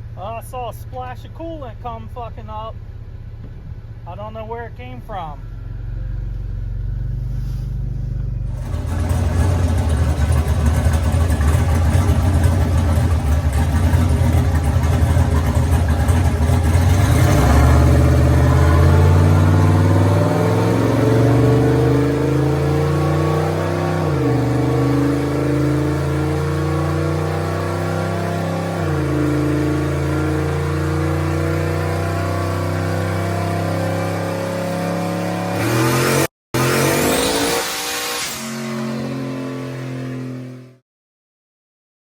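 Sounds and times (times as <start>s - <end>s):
vehicle engine running under load: 4.8s - 34.4s.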